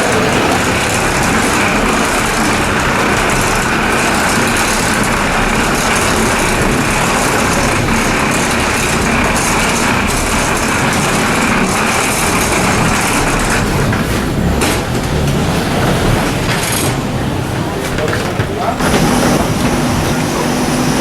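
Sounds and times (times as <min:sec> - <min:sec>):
airliner engines rushing drone: 0:00.0 - 0:21.0.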